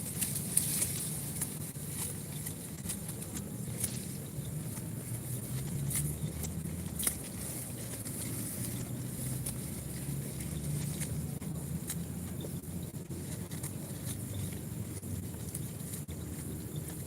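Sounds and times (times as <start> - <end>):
goats chewing plants: 0.0 - 17.0
low steady rumble: 0.0 - 17.0.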